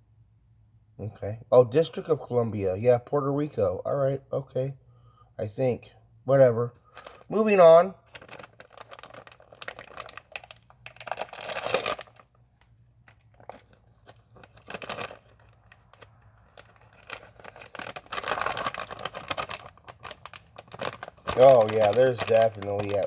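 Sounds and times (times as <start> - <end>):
plastic snack pouch crinkling: 6.8 - 23.0.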